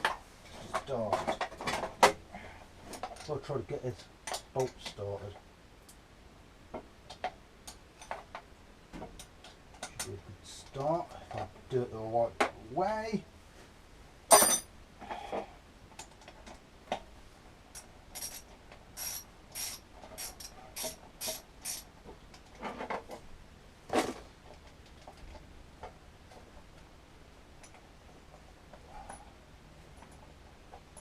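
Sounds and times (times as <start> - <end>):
hand ratchet clicking: 17.8 - 21.9.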